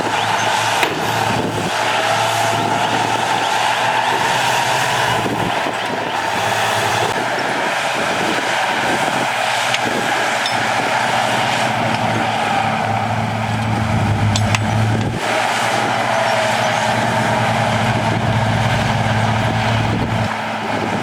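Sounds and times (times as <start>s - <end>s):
heavy diesel engine running: 0.0s - 21.0s
low hum: 10.0s - 21.0s.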